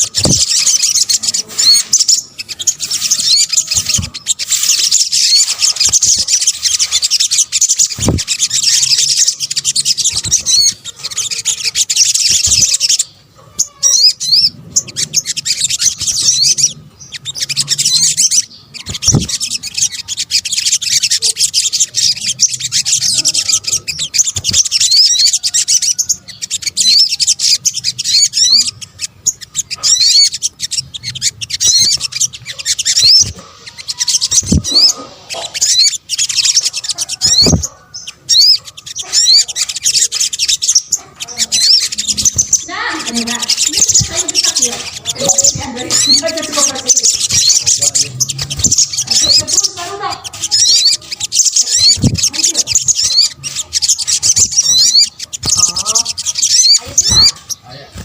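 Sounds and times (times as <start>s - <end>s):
bird chirps and trills: 0.0s - 58.0s.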